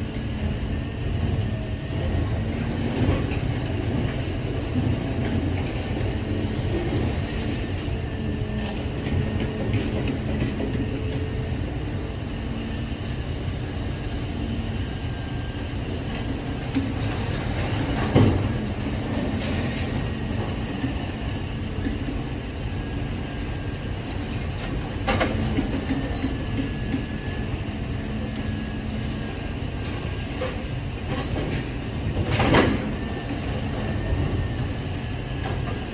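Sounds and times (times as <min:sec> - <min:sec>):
hydraulic hum: 0:00.0 - 0:21.8.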